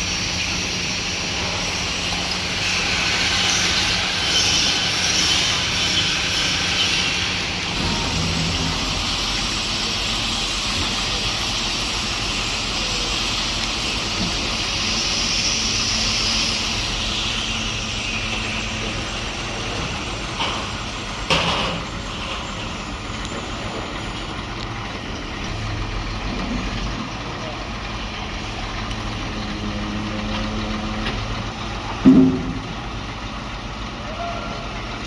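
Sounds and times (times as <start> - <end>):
construction machinery engine hum: 0.0 - 35.0
sharp knocks: 32.0 - 32.9.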